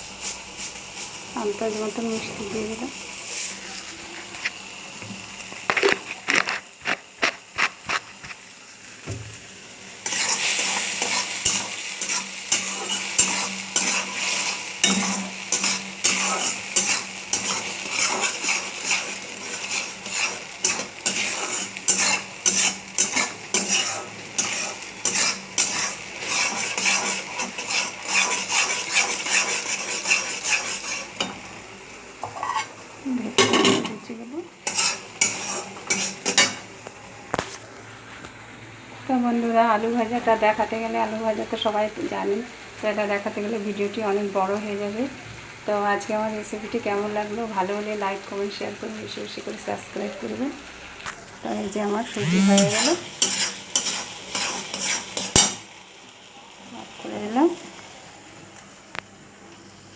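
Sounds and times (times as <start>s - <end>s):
steady sizzle: 0.0s - 59.9s
spoon scraping a pan: 5.5s - 8.5s, 10.0s - 31.5s, 32.2s - 32.8s, 34.6s - 36.7s, 52.1s - 55.6s.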